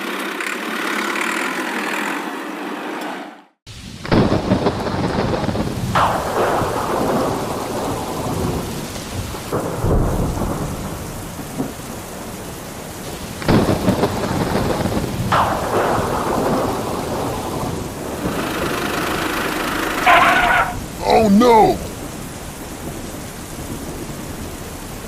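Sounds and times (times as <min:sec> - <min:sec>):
steady rain: 0:03.7 - 0:25.0
rumbling thunder: 0:03.8 - 0:21.0
sharp thunder claps: 0:03.9 - 0:21.0.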